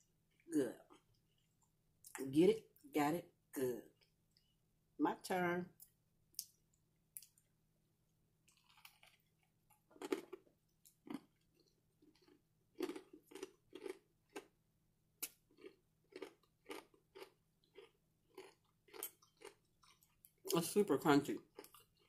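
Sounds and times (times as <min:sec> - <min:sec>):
crunchy chewing: 0:08.4 - 0:14.5, 0:15.2 - 0:20.5, 0:21.4 - 0:22.0.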